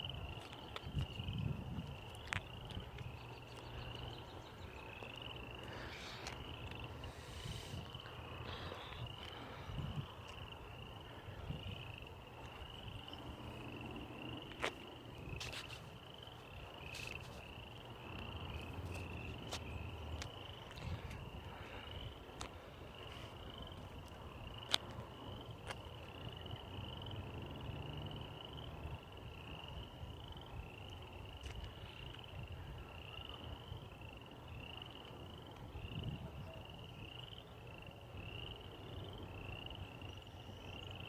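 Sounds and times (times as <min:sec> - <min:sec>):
frogs chirping: 0:00.0 - 0:41.0.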